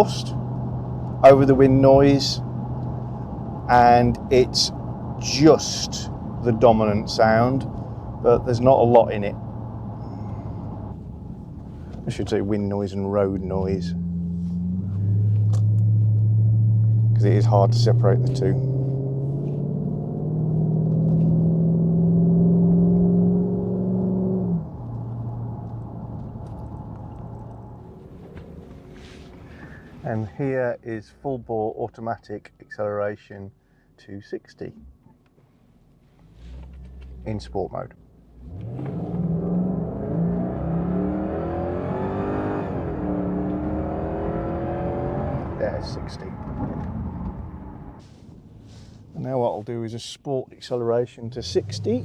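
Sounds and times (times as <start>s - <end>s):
car exhaust droning: 0.0s - 30.3s, 36.2s - 49.1s, 51.2s - 52.0s
wind and road noise: 0.0s - 30.5s, 34.8s - 50.4s, 51.0s - 52.0s.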